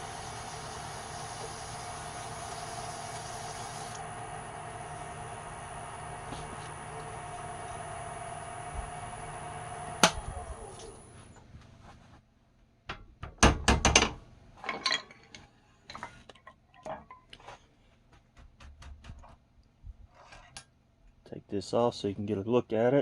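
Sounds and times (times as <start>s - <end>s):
wood lathe motor spinning down: 0.0s - 11.3s.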